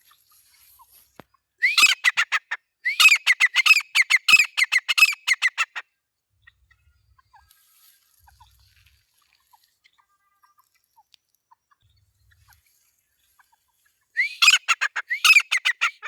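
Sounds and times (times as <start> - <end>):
bird calling shrill notes: 1.6 - 2.3, 2.9 - 5.8, 14.2 - 16.0
faint bird chirps: 13.4 - 16.0.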